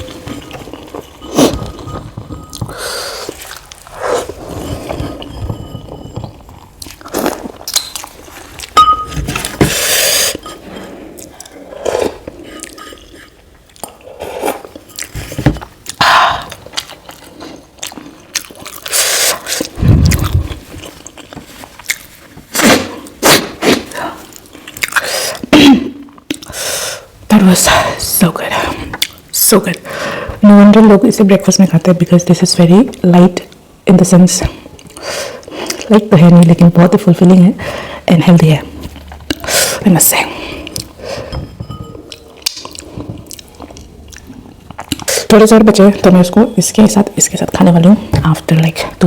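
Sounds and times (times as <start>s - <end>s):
person chewing food: 0.0s - 25.1s, 26.1s - 26.6s, 34.7s - 35.9s, 40.5s - 45.3s
wet mouth clicks and smacks: 7.7s - 8.1s, 42.4s - 43.4s.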